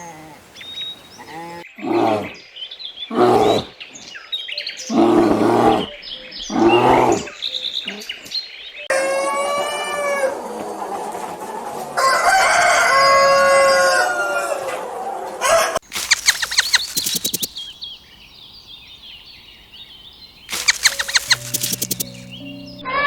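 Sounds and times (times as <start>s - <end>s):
rooster crowing: 8.9s - 11.2s, 11.9s - 15.8s
sharp clicks: 15.8s - 17.7s, 20.5s - 22.4s
faint chirping: 15.8s - 22.8s.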